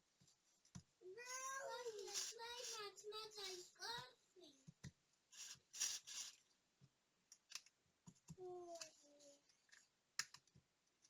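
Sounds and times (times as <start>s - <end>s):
small hand tools clicking and scraping: 1.2s - 3.8s, 5.3s - 6.4s.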